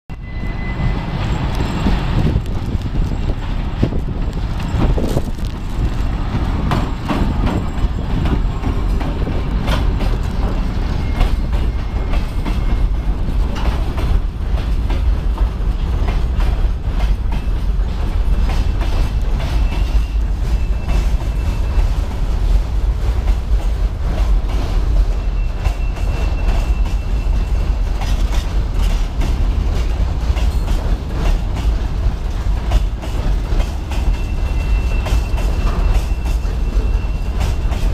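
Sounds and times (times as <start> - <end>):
high wheel squeal: 0.1 - 2.3, 10.7 - 13.2, 19.5 - 22.0, 25.1 - 27.8, 34.0 - 37.9
diesel locomotive engine: 0.1 - 37.9
train wheels clattering over joints: 1.1 - 37.9.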